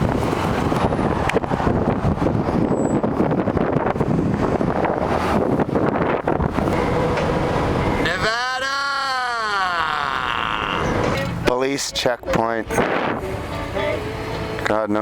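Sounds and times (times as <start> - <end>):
wind buffeting microphone: 0.0 - 8.6, 12.2 - 14.7
vehicle running noise: 0.0 - 15.0.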